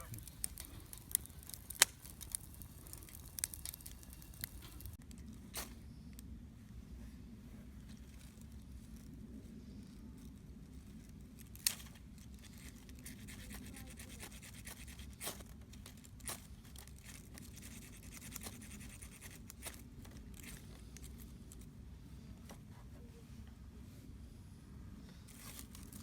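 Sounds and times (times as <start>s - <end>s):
campfire crackling and popping: 0.0s - 6.3s.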